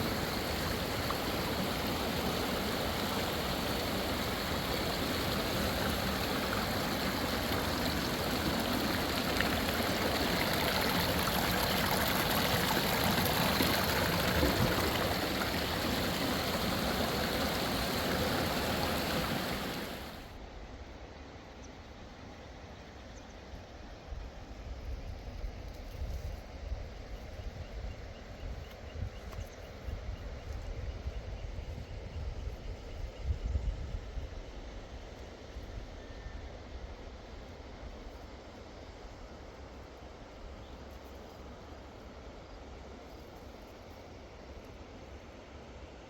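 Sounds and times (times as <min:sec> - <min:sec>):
river water rushing: 0:00.0 - 0:20.3.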